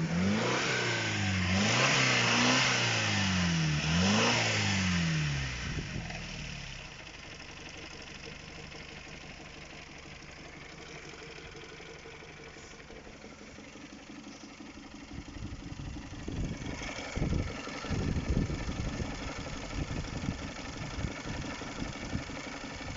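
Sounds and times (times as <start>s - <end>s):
car engine idling: 0.0s - 22.9s
engine knocking: 5.6s - 22.9s.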